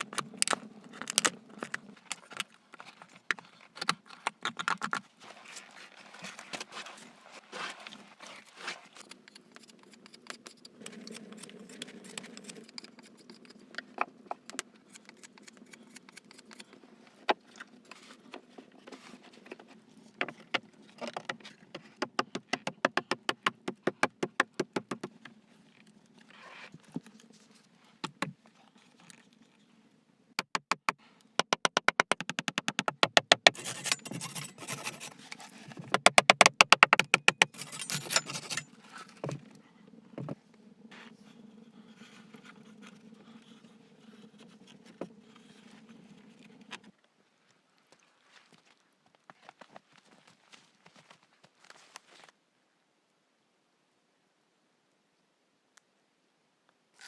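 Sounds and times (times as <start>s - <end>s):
taps knocks and scrapes on wood: 20.2s - 25.2s, 30.4s - 39.4s
fast run of clicks: 31.4s - 35.1s, 36.0s - 38.7s.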